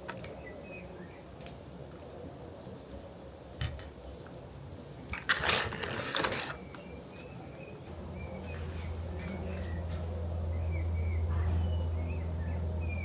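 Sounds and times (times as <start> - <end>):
potting soil scraping and rustling: 5.1 - 10.1.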